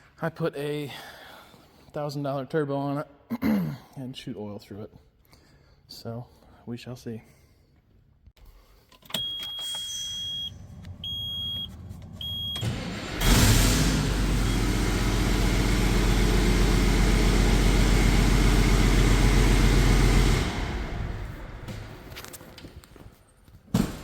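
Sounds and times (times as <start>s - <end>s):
diesel engine starting and idling: 9.1s - 22.3s
short electronic beeps: 9.2s - 12.7s.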